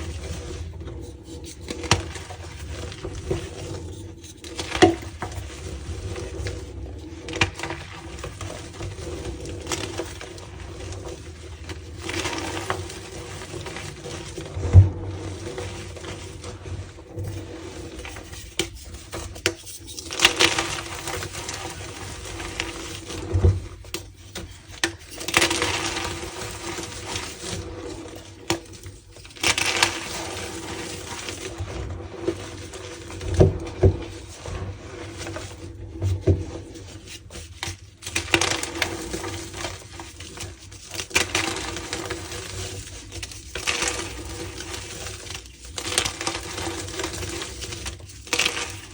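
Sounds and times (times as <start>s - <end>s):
chalk blocks crunching: 37.6s - 48.9s.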